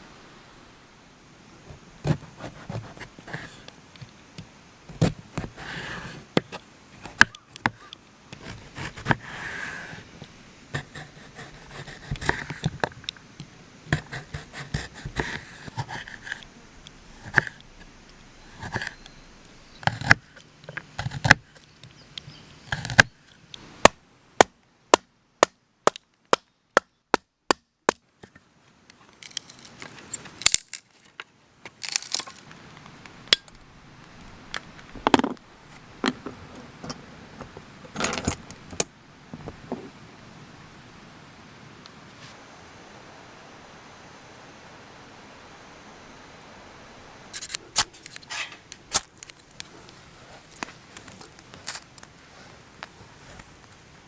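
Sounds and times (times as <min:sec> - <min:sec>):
handling sounds: 0:29.0 - 0:40.0, 0:47.4 - 0:53.8.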